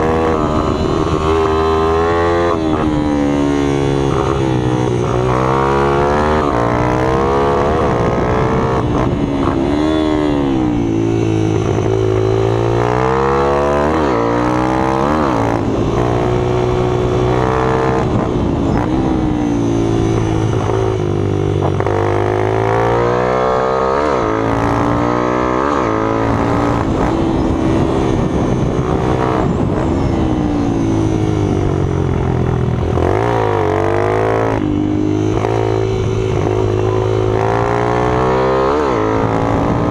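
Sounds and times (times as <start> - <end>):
minibike engines revving: 32.9 - 39.9.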